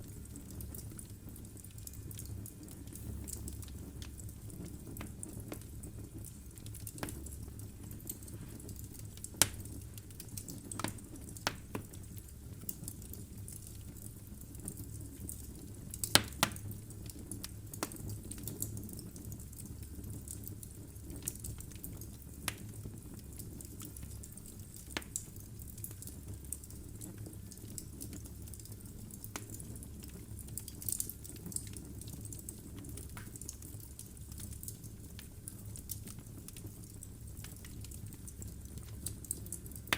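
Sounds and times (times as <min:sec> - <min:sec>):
burning logs crackling and popping: 0:00.0 - 0:39.9
fire flames rumbling: 0:00.0 - 0:39.9.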